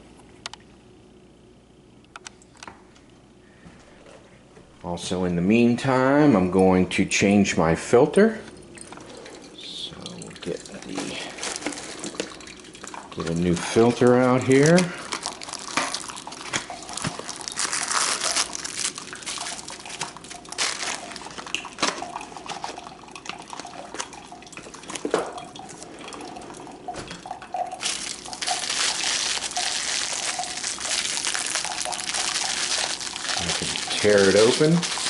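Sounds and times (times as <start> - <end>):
coffee maker brewing: 4.8 - 35.0
water trickling into a mug: 8.6 - 35.0
package crinkling and clicking: 14.6 - 24.1, 27.8 - 35.0.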